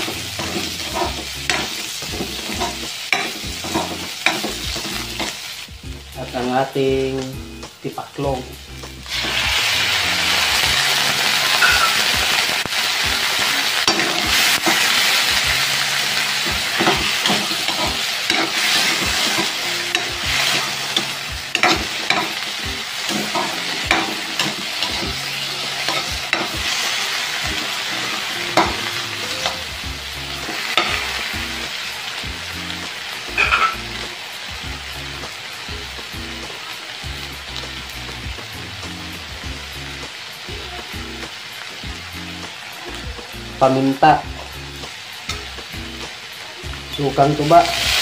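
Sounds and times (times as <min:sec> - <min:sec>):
metal spatula scraping pan: 0:00.0 - 0:05.4, 0:33.4 - 0:33.8
food sizzling in hot oil: 0:00.0 - 0:48.0.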